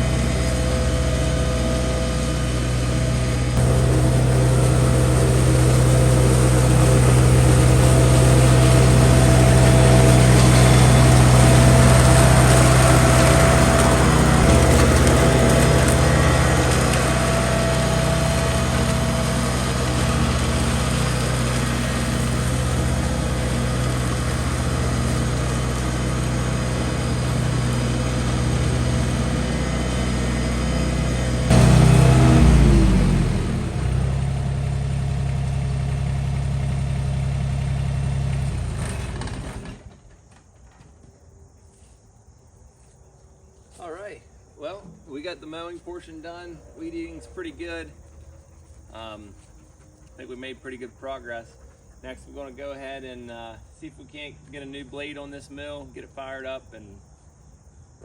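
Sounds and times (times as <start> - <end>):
lawn mower engine running: 0.0 - 40.2.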